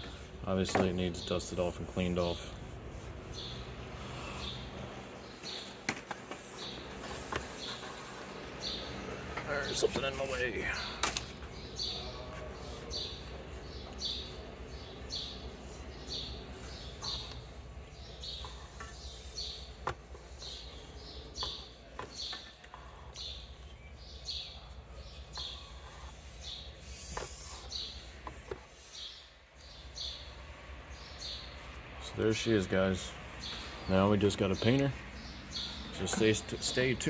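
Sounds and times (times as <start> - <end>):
bird chirping: 0.0 - 37.0.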